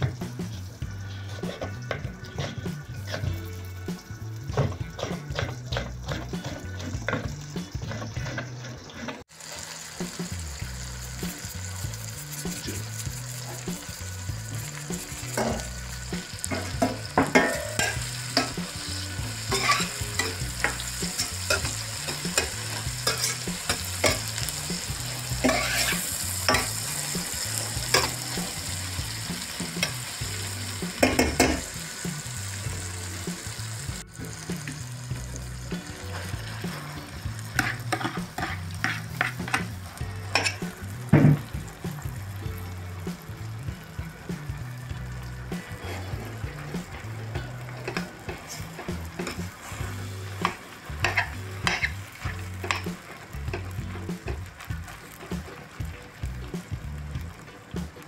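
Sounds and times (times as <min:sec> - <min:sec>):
food sizzling in frying pan: 0:00.0 - 0:58.0
spoon scraping pan: 0:01.0 - 0:03.8, 0:04.5 - 0:09.3, 0:11.3 - 0:31.7, 0:34.2 - 0:41.6, 0:45.6 - 0:54.1.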